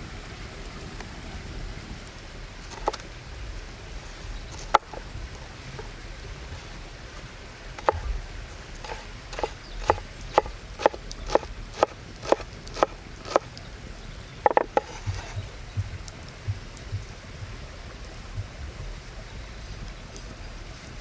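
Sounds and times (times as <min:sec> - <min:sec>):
sharp knocks: 0:06.5 - 0:13.5.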